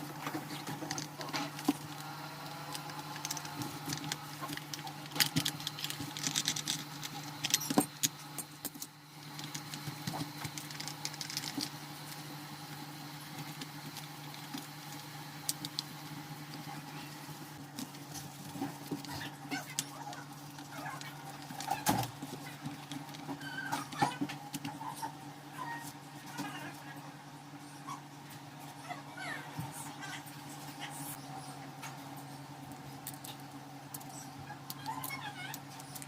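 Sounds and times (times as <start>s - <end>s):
steady low hum: 0.0s - 36.0s
small metal parts rattling: 2.7s - 11.8s.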